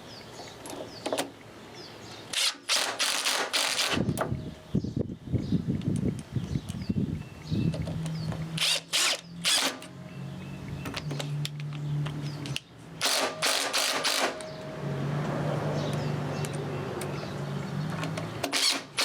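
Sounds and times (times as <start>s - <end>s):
drill driving screws into wood: 2.3s - 4.2s, 8.6s - 9.9s, 13.0s - 14.4s, 18.4s - 19.0s.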